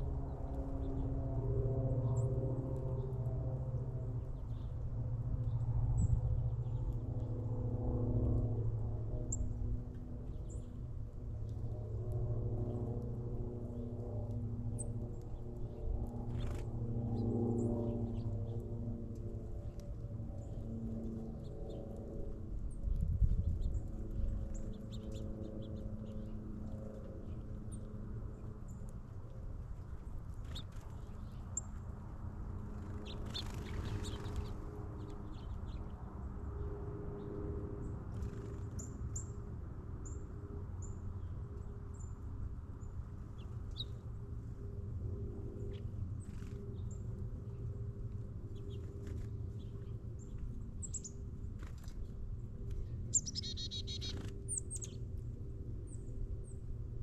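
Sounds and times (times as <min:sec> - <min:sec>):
small birds chirping: 0:32.7 - 0:36.0, 0:42.8 - 0:44.1, 0:48.5 - 0:52.0, 0:52.8 - 0:55.1.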